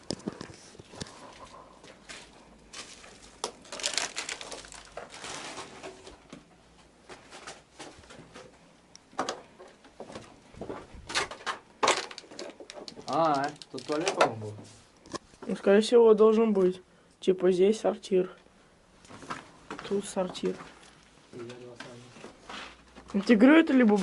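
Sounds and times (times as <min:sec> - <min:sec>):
footsteps crunching over debris: 0:00.0 - 0:06.3, 0:12.1 - 0:14.2.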